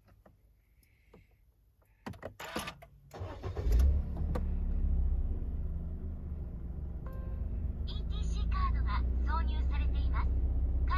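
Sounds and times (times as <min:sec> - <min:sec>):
engine starter cranking: 0:02.4 - 0:04.5
car engine revving and idling: 0:03.2 - 0:10.9.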